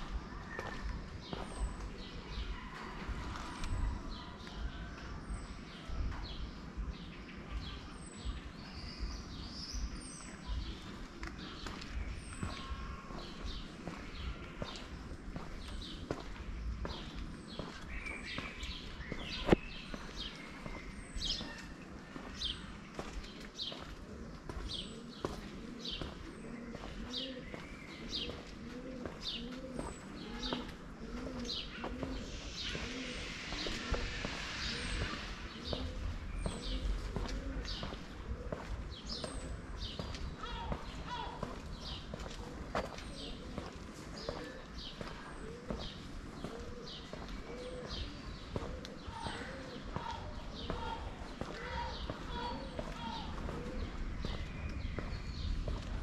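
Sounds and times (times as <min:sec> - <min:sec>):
small birds chirping: 0:00.0 - 0:56.0
low cooing: 0:24.1 - 0:39.8, 0:44.3 - 0:54.8.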